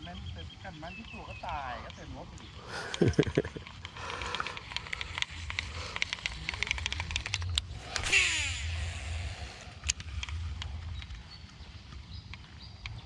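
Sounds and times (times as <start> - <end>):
low steady rumble: 3.5 - 13.0
fishing reel ticking and clicking: 3.7 - 10.7
reel spool whirring whine: 4.4 - 11.6.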